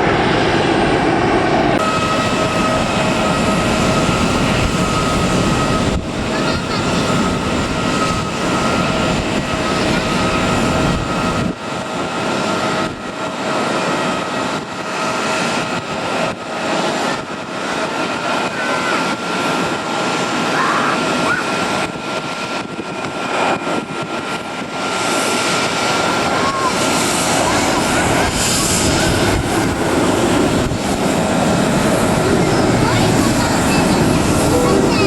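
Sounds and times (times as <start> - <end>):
jet engines whining: 0.0 - 35.0.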